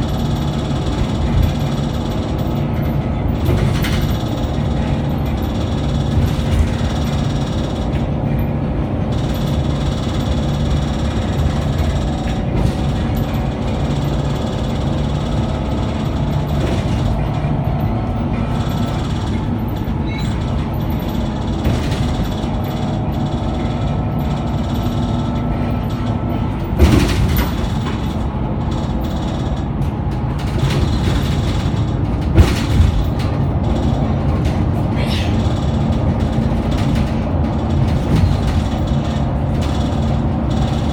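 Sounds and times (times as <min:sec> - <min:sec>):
bus engine drone: 0:00.0 - 0:40.9.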